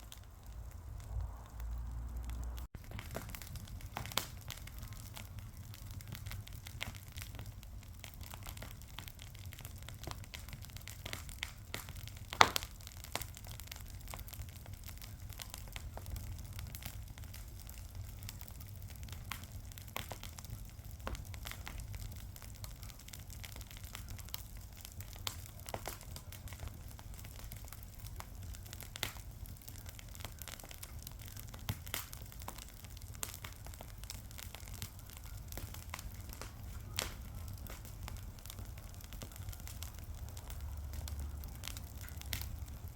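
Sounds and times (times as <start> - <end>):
low steady rumble: 0.0 - 6.8
wood fire crackling: 0.0 - 42.9.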